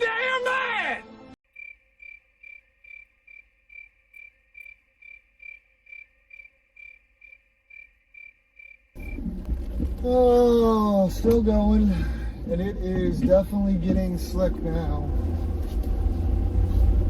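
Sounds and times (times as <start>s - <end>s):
crickets chirping: 1.5s - 9.8s.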